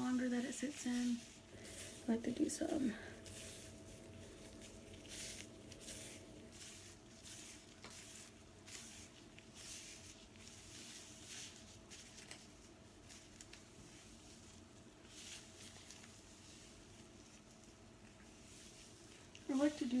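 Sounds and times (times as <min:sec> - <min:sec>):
fingers squishing through coated hair: 0:00.0 - 0:12.6.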